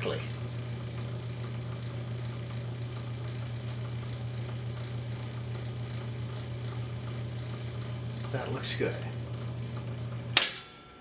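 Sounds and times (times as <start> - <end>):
wire recorder motor humming: 0.0 - 10.4.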